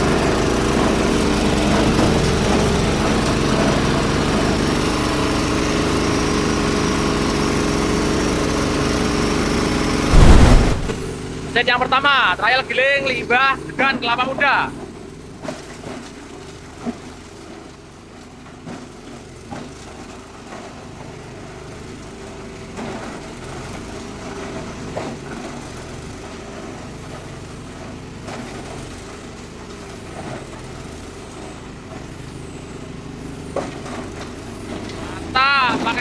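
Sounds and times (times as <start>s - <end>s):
diesel engine running: 0.0s - 15.4s, 25.8s - 36.0s
sharp knocks of shredding: 10.1s - 11.2s.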